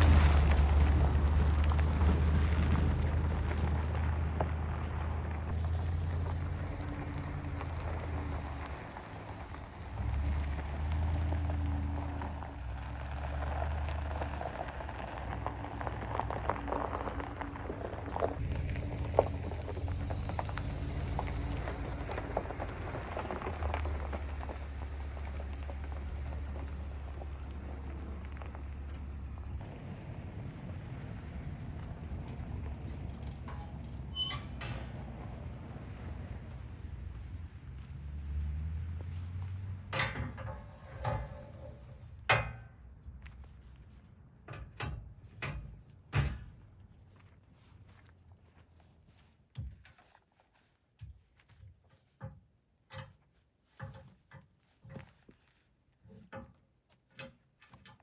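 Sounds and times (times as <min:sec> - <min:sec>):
raindrops pattering: 0:00.0 - 0:29.6
steady low rumble: 0:13.5 - 0:38.4
sharp clunks and knocks: 0:39.5 - 0:42.8, 0:44.5 - 0:46.6.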